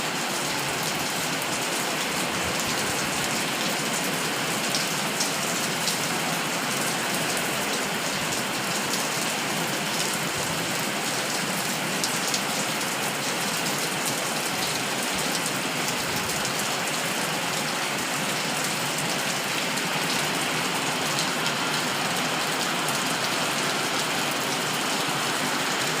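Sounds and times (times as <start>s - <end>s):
steady rainfall: 0.0s - 26.0s
raindrops ticking on a surface: 0.7s - 17.0s.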